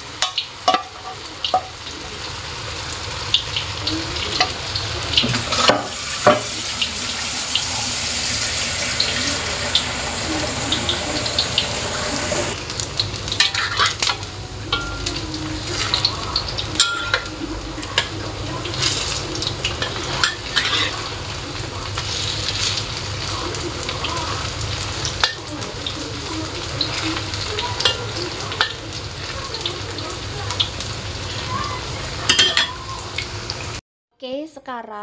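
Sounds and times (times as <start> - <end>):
food sizzling in oil: 0.0 - 33.8
metal spatula scraping a wok: 13.4 - 14.1, 19.8 - 21.1.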